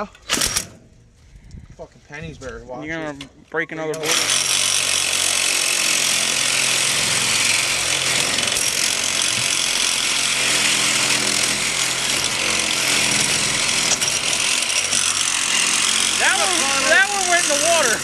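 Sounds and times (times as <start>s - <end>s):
reciprocating saw cutting metal: 4.0s - 18.0s.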